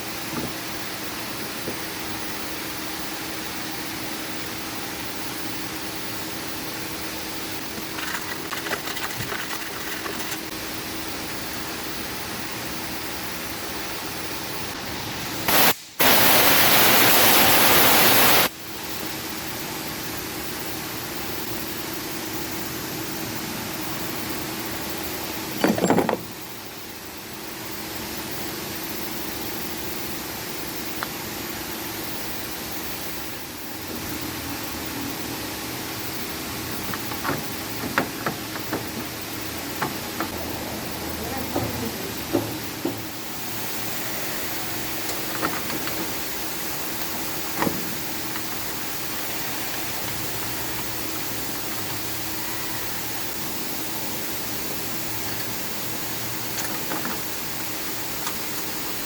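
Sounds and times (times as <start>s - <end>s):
background hum: 0.0s - 16.9s
tools clattering: 7.7s - 10.5s, 25.6s - 26.3s, 36.7s - 40.6s, 45.0s - 46.4s
loud even hiss: 10.4s - 19.0s, 35.3s - 59.0s.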